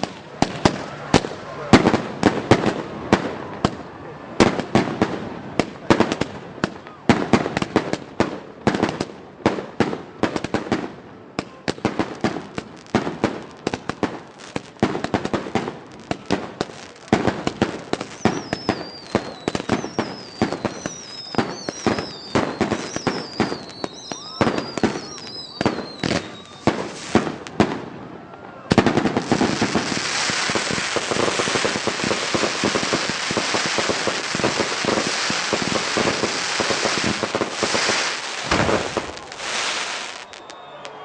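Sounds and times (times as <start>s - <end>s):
fireworks bangs: 0.0s - 41.0s
whistling firework shells: 17.4s - 27.6s, 28.7s - 41.0s.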